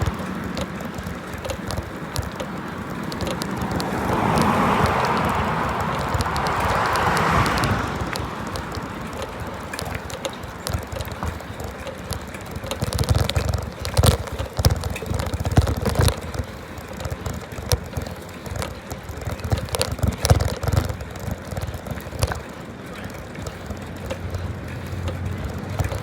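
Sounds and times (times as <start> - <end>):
bicycle rumbling and rattling: 0.0 - 26.0.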